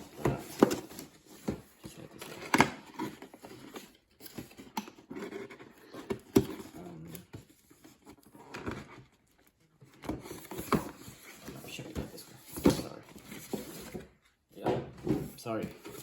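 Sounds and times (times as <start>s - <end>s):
cardboard box rustling and tapping: 0.0s - 9.2s, 9.8s - 16.0s.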